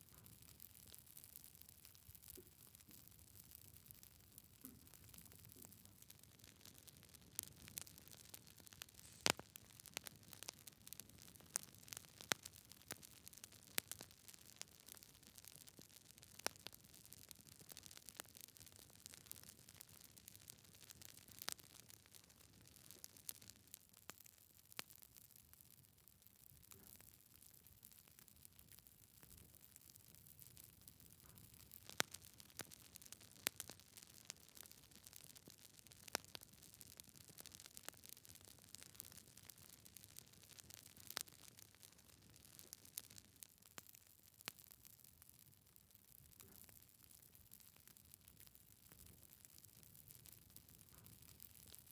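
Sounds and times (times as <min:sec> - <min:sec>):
faint fire hiss: 0:00.0 - 0:24.2
logs crackling in a fireplace: 0:00.0 - 0:51.9.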